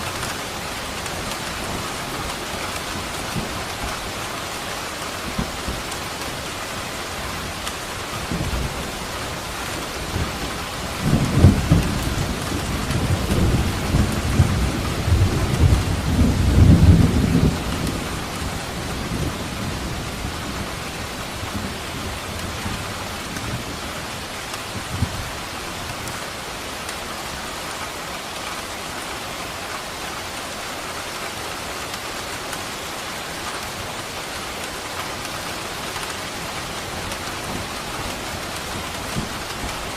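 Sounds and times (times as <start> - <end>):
steady rain: 0.0 - 39.9
thunder rumbling: 8.2 - 20.9.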